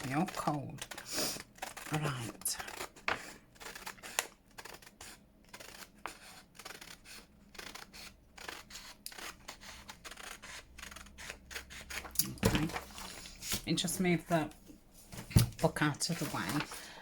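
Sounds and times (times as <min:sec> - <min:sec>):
scissors snipping paper: 0:00.0 - 0:13.6, 0:16.0 - 0:16.8.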